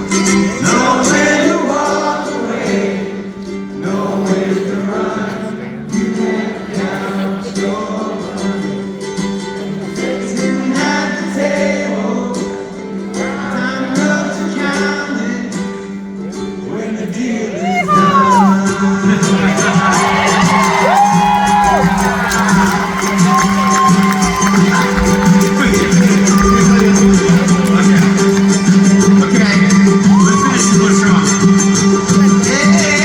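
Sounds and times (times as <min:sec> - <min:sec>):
person singing: 0:00.0 - 0:33.0
live band playing: 0:17.7 - 0:33.0.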